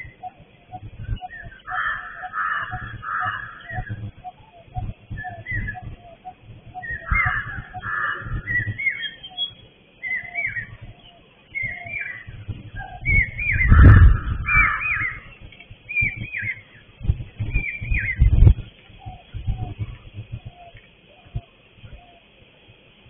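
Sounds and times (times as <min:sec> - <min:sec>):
low rumble: 0:00.0 - 0:09.3, 0:11.6 - 0:20.7
birds whistling: 0:00.0 - 0:22.4
low bird notes: 0:00.0 - 0:22.4.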